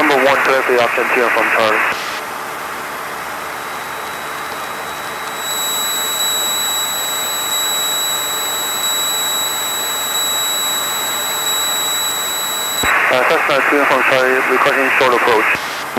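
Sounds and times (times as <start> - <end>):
airplane engine drone in cockpit: 3.1 - 12.9
steady high-pitched tone: 3.5 - 12.9.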